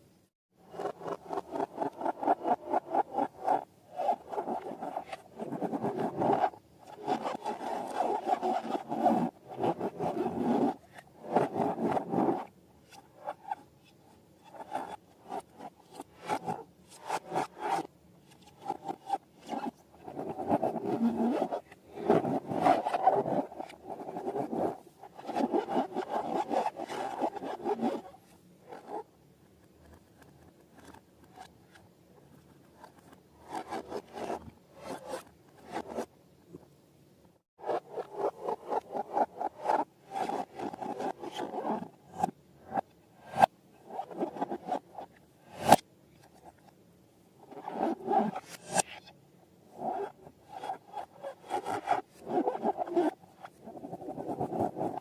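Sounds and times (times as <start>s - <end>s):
balloons rubbing and scraping: 0.7s - 12.5s, 14.4s - 29.1s, 37.6s - 45.8s, 47.5s - 49.0s, 49.8s - 55.0s.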